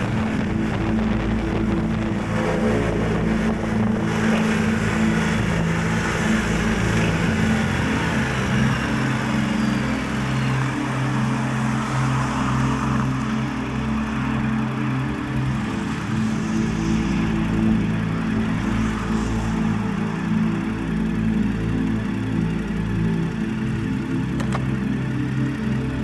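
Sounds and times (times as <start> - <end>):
wind buffeting microphone: 0.0 - 10.8
motorcycle engine running: 0.0 - 26.0.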